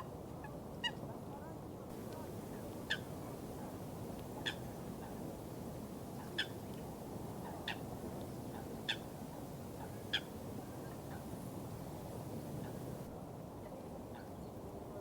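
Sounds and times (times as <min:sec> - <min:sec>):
bird calling: 0:01.9 - 0:05.3, 0:08.5 - 0:13.1
rushing water: 0:01.9 - 0:13.1.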